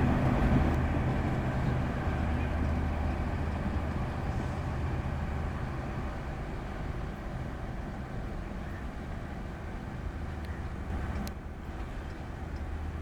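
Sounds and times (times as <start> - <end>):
locomotive engine droning: 0.0 - 8.2.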